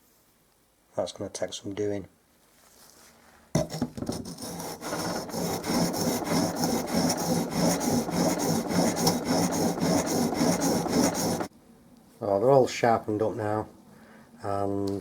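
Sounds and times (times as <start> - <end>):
chisel rasping on sharpening stone: 3.6 - 11.5.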